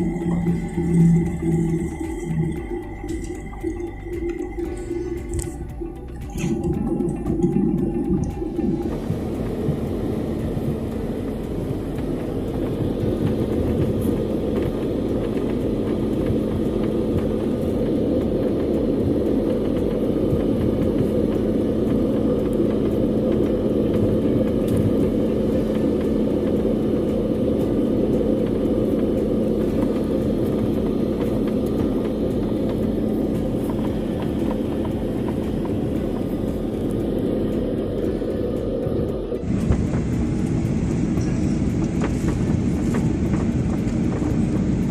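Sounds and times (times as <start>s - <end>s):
constant low hum: 0.0s - 44.9s
vehicle rumble from inside: 0.0s - 44.9s.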